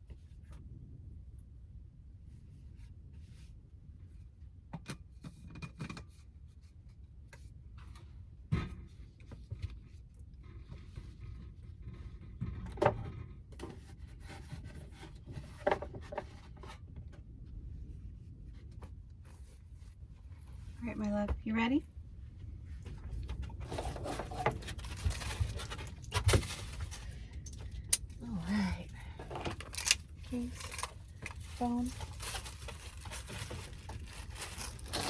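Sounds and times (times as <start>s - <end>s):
steady low rumble: 0.0s - 4.7s, 13.2s - 35.0s.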